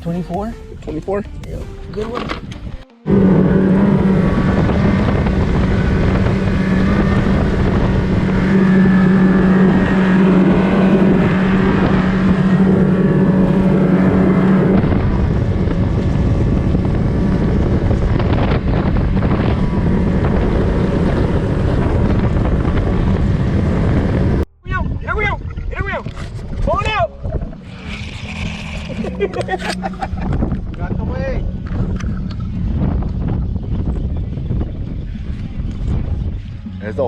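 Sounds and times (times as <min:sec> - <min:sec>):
wind buffeting microphone: 0:00.0 - 0:37.0
motorboat engine droning: 0:02.1 - 0:24.5, 0:25.3 - 0:37.0.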